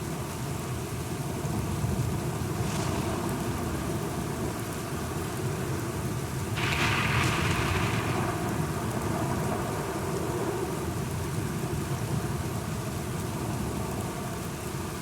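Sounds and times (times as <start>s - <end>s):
steady rain: 0.0s - 15.0s
thunder rumbling: 6.6s - 10.8s.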